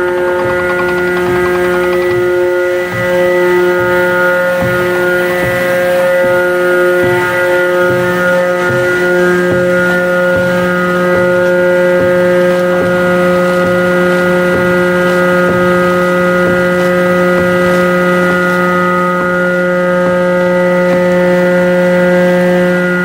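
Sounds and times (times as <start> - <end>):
faint regular ticking: 0.0 - 2.7
ship diesel engine humming: 0.0 - 23.0.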